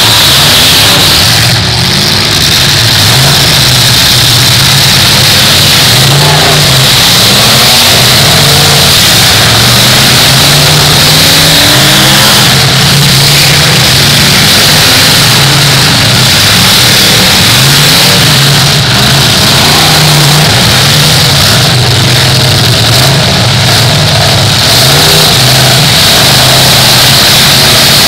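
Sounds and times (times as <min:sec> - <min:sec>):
car engines revving: 0:00.0 - 0:28.0.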